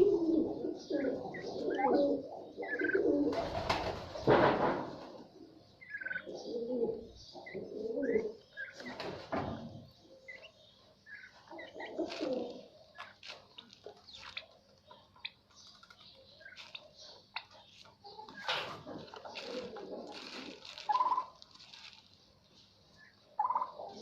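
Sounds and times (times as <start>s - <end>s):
turkeys warbling calls: 0.0s - 3.3s, 5.8s - 8.9s, 10.3s - 21.8s, 23.0s - 24.0s.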